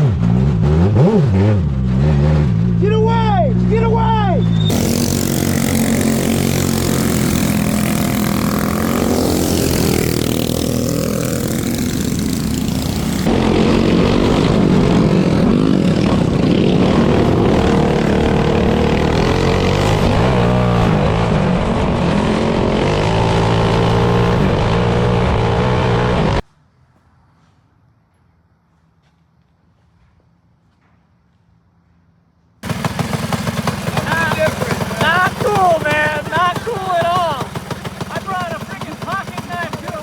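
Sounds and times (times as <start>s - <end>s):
go-kart engine running hard: 4.4s - 26.4s, 32.6s - 40.0s.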